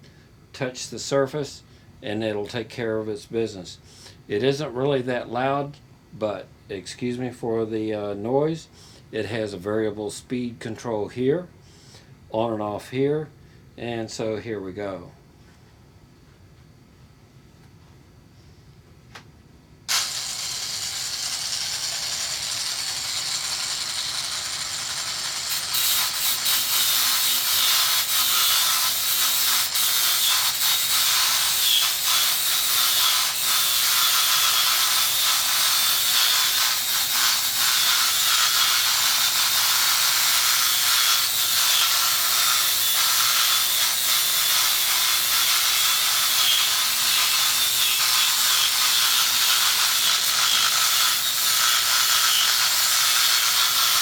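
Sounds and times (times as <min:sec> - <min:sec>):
die grinder running at high speed: 0:19.9 - 0:54.0.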